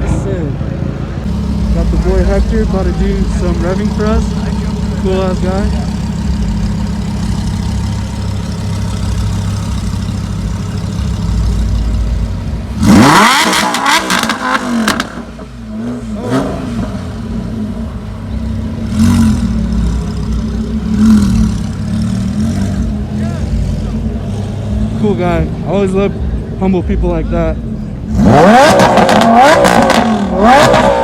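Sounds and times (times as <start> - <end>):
car engine idling: 1.1 - 31.0
car engine revving: 1.2 - 31.0
exhaust cracks: 1.3 - 23.4.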